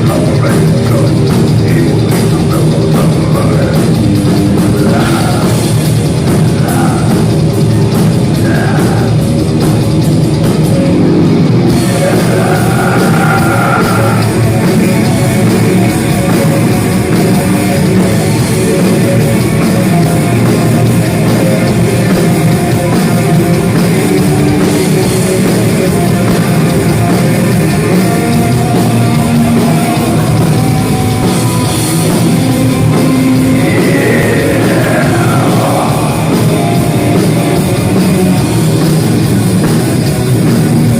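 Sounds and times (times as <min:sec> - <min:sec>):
person singing: 0:00.0 - 0:09.4, 0:11.7 - 0:16.2, 0:32.8 - 0:38.4
live heavy metal music: 0:00.0 - 0:40.9.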